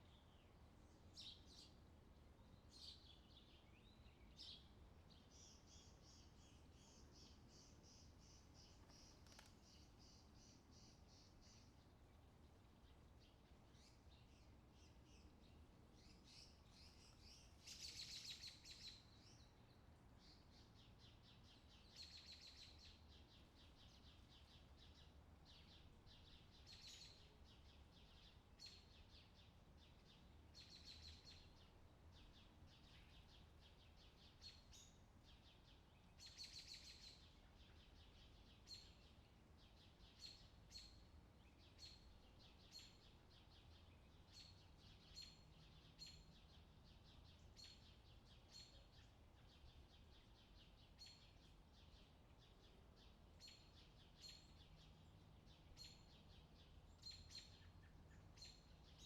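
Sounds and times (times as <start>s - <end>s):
low steady background hum: 0.0s - 59.0s.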